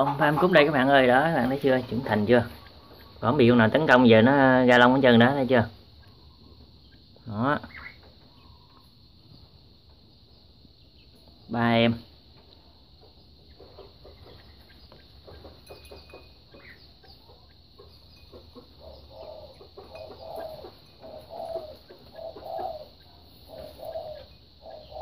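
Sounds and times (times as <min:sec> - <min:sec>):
bird calling: 0:00.0 - 0:09.6, 0:13.1 - 0:25.0.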